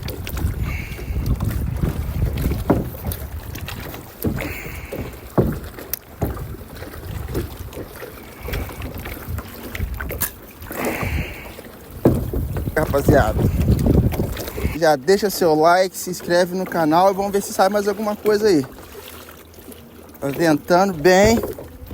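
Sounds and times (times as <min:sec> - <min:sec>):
wind buffeting microphone: 0:00.0 - 0:15.6, 0:20.9 - 0:21.9
water slapping against kayak hull: 0:00.0 - 0:21.9.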